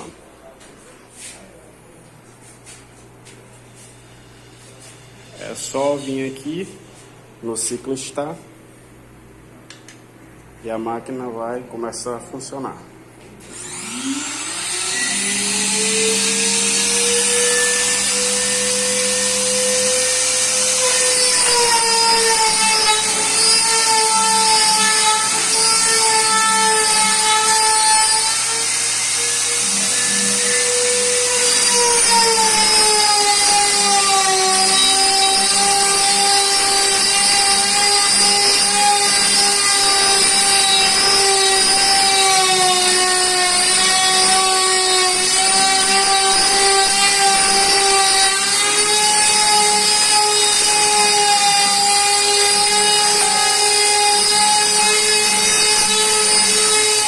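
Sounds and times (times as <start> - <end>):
router spindle whine: 13.4 - 57.0.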